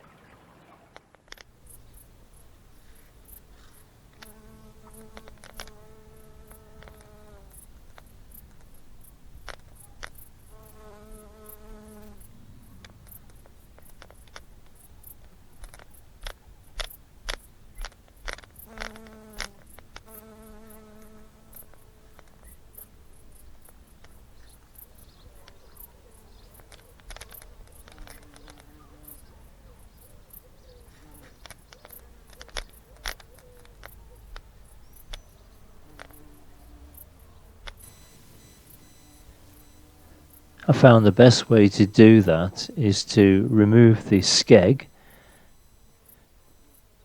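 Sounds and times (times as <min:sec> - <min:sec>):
flying insect buzzing: 0:03.5 - 0:07.7, 0:10.5 - 0:12.3, 0:18.6 - 0:22.2.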